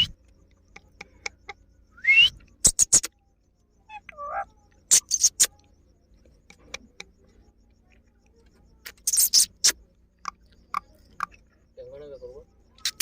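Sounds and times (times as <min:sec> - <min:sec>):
parakeet clicking chirps: 0:00.0 - 0:03.2, 0:03.9 - 0:08.2, 0:08.8 - 0:11.5, 0:12.7 - 0:13.0
parakeet call: 0:03.8 - 0:05.7, 0:08.8 - 0:09.8, 0:12.1 - 0:13.0.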